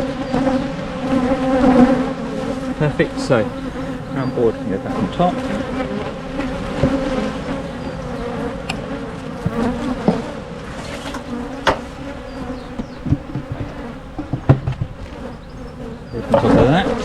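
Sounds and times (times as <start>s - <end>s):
bees buzzing: 0.0s - 17.0s
wooden knocks: 11.0s - 16.6s.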